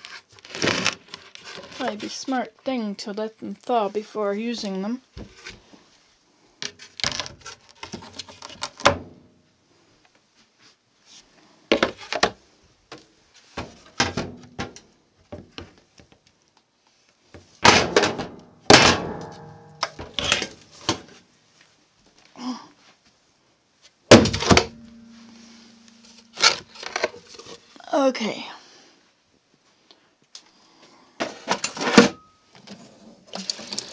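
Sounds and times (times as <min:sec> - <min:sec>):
cupboard door loud bangs: 0:17.7 - 0:21.0, 0:24.1 - 0:24.9.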